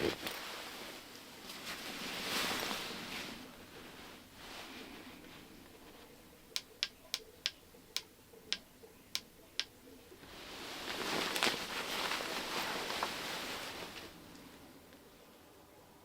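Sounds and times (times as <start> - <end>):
faint hiss: 0.0 - 16.0
sharp clicks: 6.5 - 9.7.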